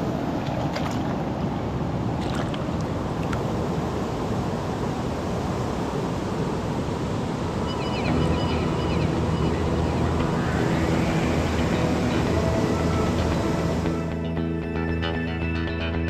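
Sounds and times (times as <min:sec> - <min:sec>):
wind buffeting microphone: 0:00.0 - 0:14.3.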